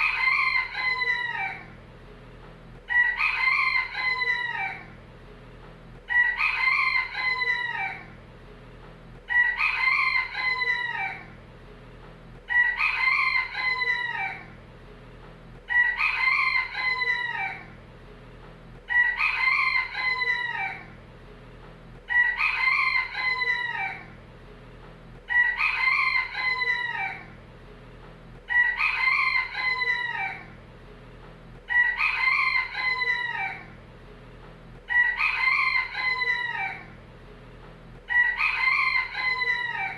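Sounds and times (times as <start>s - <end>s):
rooster crowing: 0.0s - 1.8s, 2.9s - 5.0s, 6.1s - 8.2s, 9.3s - 11.4s, 12.5s - 14.6s, 15.7s - 17.8s, 18.9s - 21.0s, 22.1s - 24.2s, 25.3s - 27.4s, 28.5s - 30.6s, 31.7s - 33.8s, 34.9s - 37.0s, 38.1s - 39.9s.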